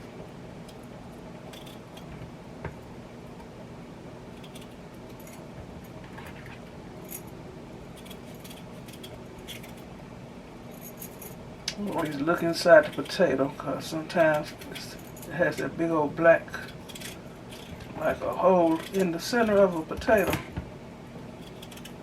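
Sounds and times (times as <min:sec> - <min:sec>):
steady low hum: 0:00.0 - 0:22.0
blade scraping potato: 0:12.0 - 0:15.7, 0:16.5 - 0:20.2, 0:21.4 - 0:22.0.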